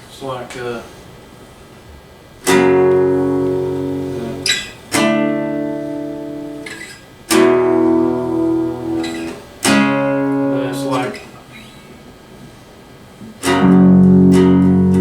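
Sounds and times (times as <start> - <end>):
acoustic guitar strums: 2.4 - 12.1, 13.2 - 15.0
hand scraping guitar strings: 2.5 - 11.2.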